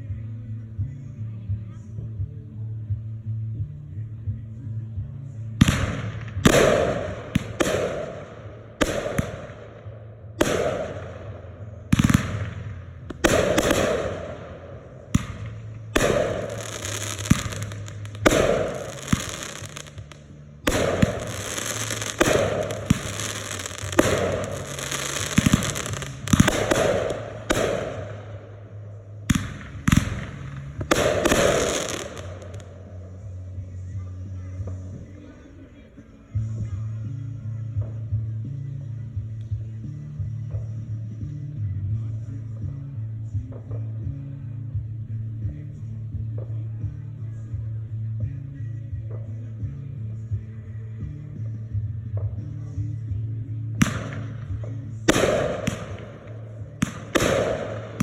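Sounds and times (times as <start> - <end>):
fireworks bangs: 5.6 - 33.0, 53.8 - 58.0
fireworks crackle: 11.9 - 33.0.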